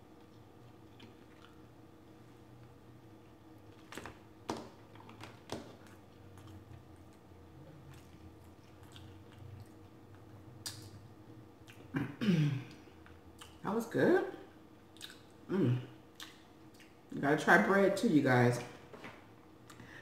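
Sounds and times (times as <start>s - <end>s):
corn on the cob being chewed: 0.1s - 1.7s, 5.8s - 11.0s
wet mouth clicks and smacks: 10.6s - 11.0s, 15.0s - 15.3s, 16.2s - 17.0s.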